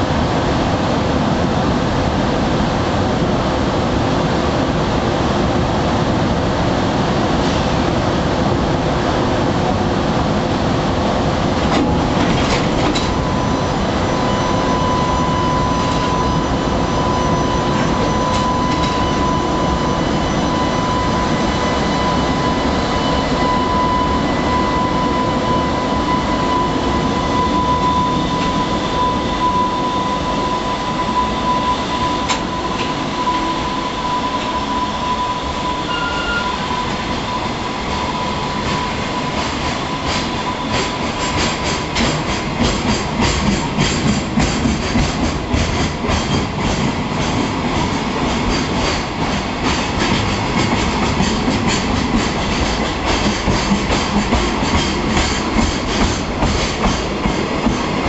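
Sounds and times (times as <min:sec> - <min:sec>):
train wheels rumbling on rails: 0:00.0 - 0:58.0
thin high tone: 0:13.2 - 0:39.3.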